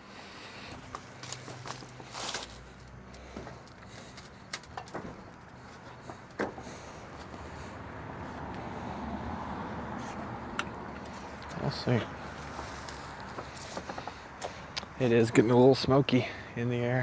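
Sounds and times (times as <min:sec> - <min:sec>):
low vehicle engine hum: 0:00.0 - 0:17.0
light clicks and knocks: 0:03.2 - 0:07.3, 0:12.4 - 0:15.0.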